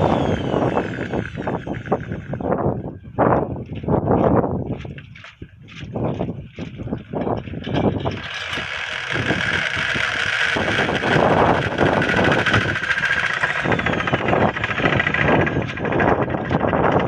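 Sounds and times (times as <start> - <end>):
high whine: 0.0 - 3.0, 7.7 - 17.0
spinning wheel device rattling: 7.6 - 16.9.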